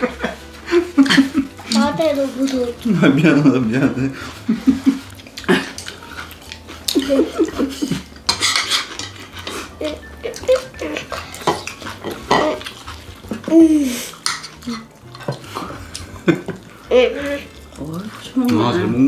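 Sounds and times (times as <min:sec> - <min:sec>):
chewing: 0:00.9 - 0:03.2, 0:04.2 - 0:19.0
cutlery clicking on plates: 0:08.2 - 0:09.6, 0:11.3 - 0:12.7, 0:14.2 - 0:15.8.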